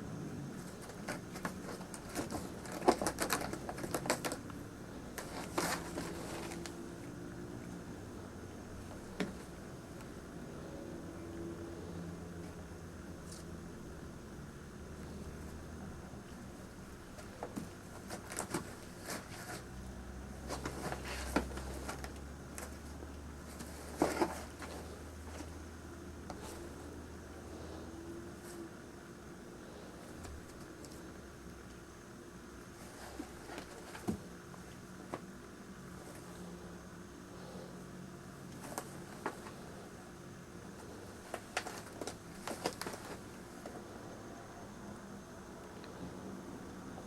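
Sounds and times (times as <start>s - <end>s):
low steady hum: 0.0s - 47.0s
cat scratching a scratcher: 0.5s - 7.2s, 17.1s - 22.8s.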